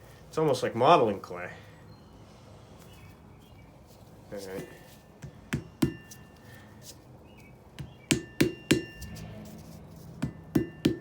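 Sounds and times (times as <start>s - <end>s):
hammer striking an anvil: 8.1s - 9.0s, 10.2s - 11.0s.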